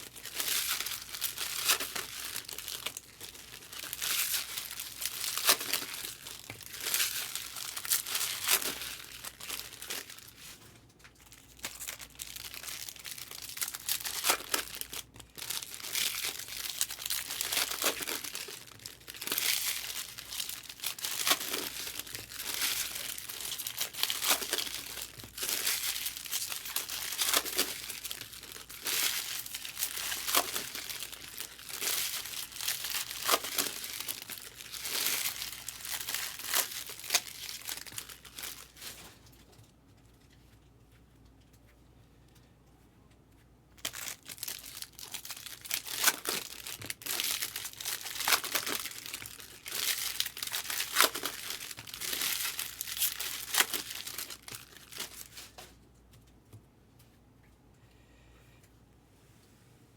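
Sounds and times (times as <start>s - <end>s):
card pack wrappers crinkling: 0.0s - 39.2s, 43.8s - 55.7s.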